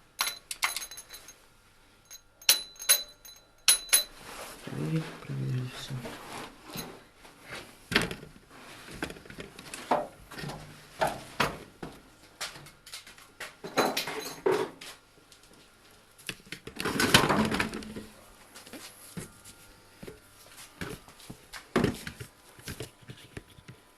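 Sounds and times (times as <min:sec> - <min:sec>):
metal tools knocking and clinking: 0:00.2 - 0:01.4, 0:02.1 - 0:04.2.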